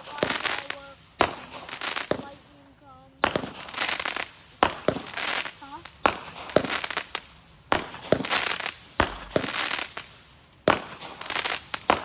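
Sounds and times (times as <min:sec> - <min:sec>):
fireworks bangs: 0:00.0 - 0:12.0
fireworks hissing rush: 0:00.0 - 0:12.0.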